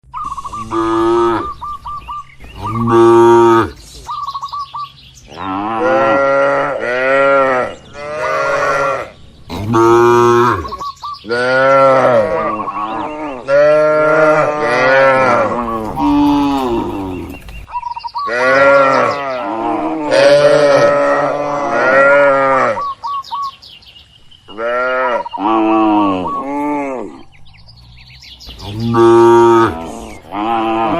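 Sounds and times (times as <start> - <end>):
cattle mooing: 0.5 - 1.6, 2.6 - 3.8, 5.3 - 17.4, 18.3 - 22.9, 28.6 - 30.9.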